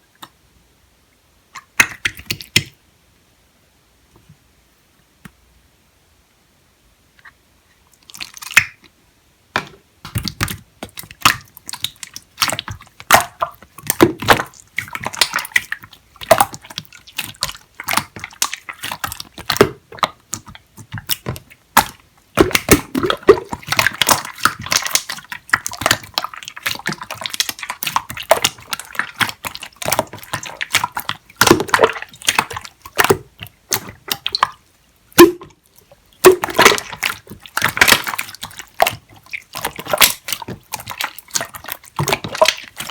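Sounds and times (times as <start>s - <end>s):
slime popping and crackling: 10.0s - 35.6s, 36.2s - 42.9s.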